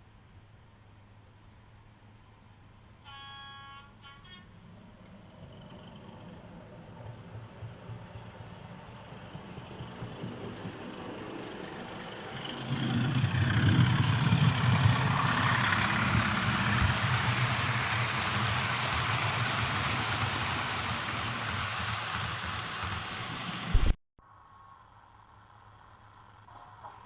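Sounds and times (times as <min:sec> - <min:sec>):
high squeals of model train: 0:03.0 - 0:04.6
model train rolling rumble: 0:04.4 - 0:23.7.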